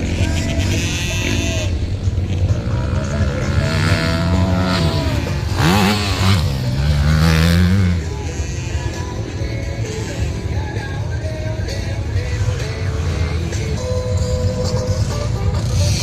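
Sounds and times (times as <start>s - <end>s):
motorbike engine revving: 0.0s - 10.9s.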